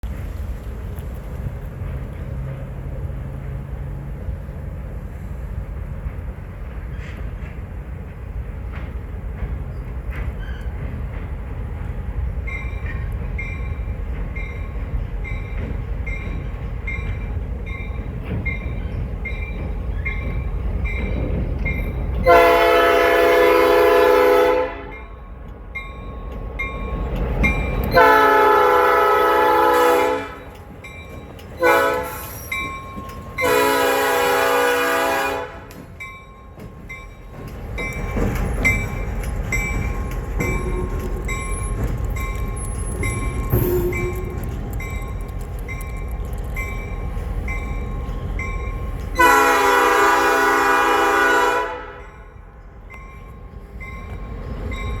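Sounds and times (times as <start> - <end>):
locomotive rumbling: 0.0 - 55.0
locomotive bell ringing: 12.4 - 35.2, 35.8 - 51.2, 51.8 - 55.0
train horn blasts: 22.2 - 25.1, 27.9 - 30.5, 31.6 - 32.4, 33.4 - 36.0, 49.2 - 52.4.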